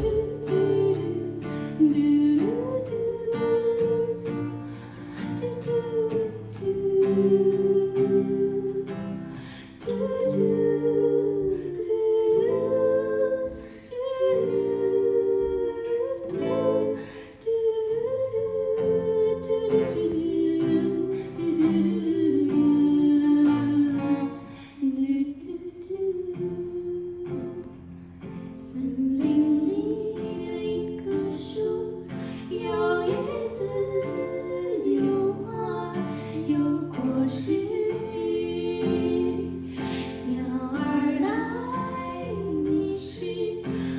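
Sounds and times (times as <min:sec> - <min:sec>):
acoustic guitar strumming and plucking: 0:00.0 - 0:43.9
person singing slow melody: 0:00.0 - 0:43.9.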